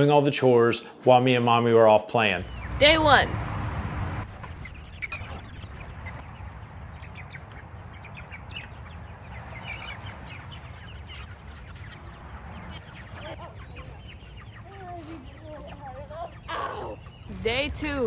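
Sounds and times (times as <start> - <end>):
low rumble: 2.4 - 13.2
chickens peeping and clucking: 2.4 - 18.0.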